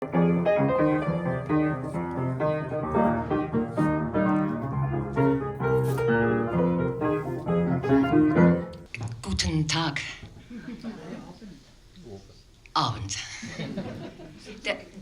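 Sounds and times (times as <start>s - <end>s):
solo piano: 0.0s - 8.8s.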